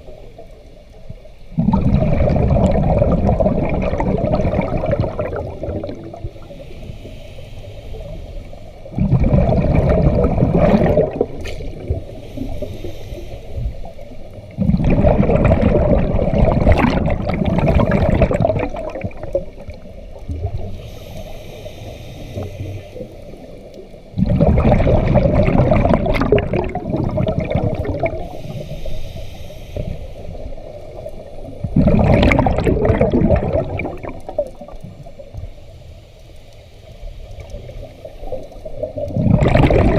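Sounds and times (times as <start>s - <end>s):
exhaled bubbles gurgling underwater: 0.0s - 39.9s
regulator inhalation hiss: 6.2s - 8.9s, 12.0s - 14.3s, 20.6s - 23.7s, 28.2s - 31.4s.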